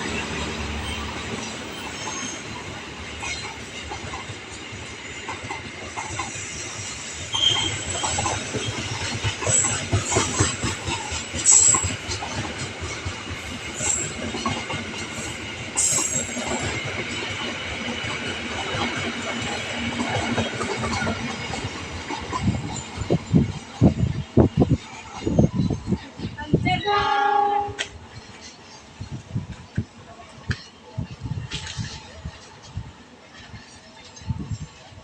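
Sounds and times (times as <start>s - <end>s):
train wheels clattering over rail joints: 0.0s - 26.4s
high metallic wheel squeals: 0.8s - 3.6s, 7.2s - 8.9s.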